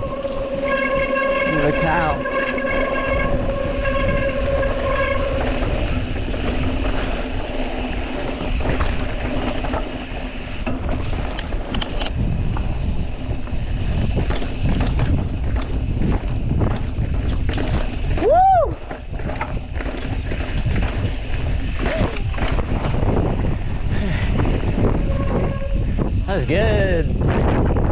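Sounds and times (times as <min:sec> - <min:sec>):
steady high squeal: 0:00.0 - 0:08.6, 0:24.1 - 0:27.1
bike rattling and knocking: 0:00.0 - 0:27.9
bike tyres rolling over dirt: 0:00.0 - 0:27.9
wind buffeting microphone: 0:00.0 - 0:27.9.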